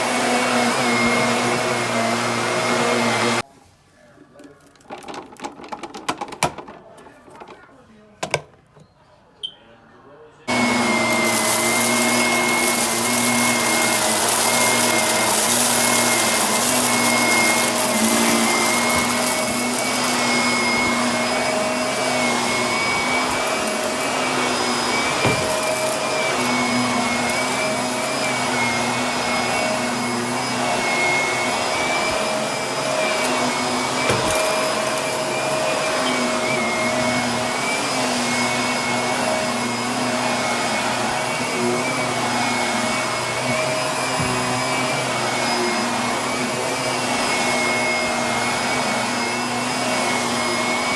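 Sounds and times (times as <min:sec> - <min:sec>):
vacuum cleaner whining: 0:00.0 - 0:03.4, 0:10.5 - 0:50.9.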